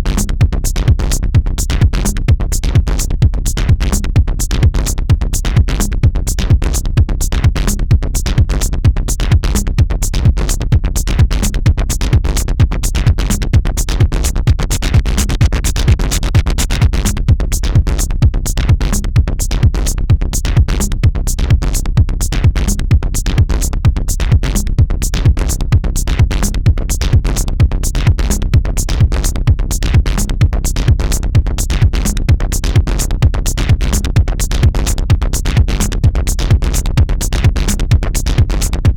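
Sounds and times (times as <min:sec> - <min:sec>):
drum machine beat: 0:00.0 - 0:38.9
electronic dance music: 0:14.2 - 0:17.1.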